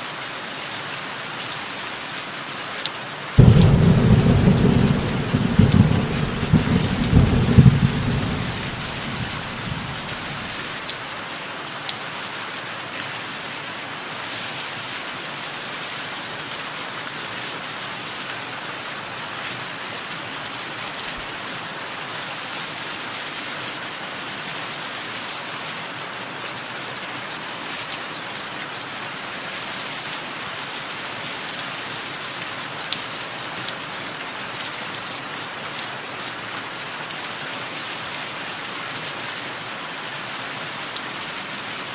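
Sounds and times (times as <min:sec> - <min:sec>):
steady rain falling: 0:00.0 - 0:41.9
low roll of thunder: 0:03.4 - 0:10.8.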